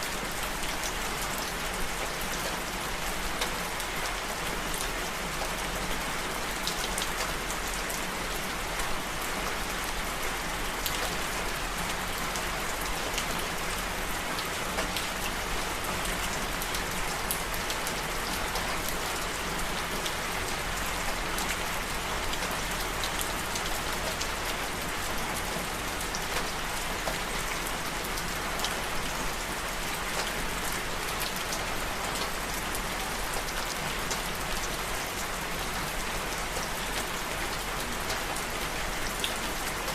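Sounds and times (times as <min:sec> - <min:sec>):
steady rain falling: 0:00.0 - 0:39.9
rain drops ticking: 0:14.0 - 0:39.9.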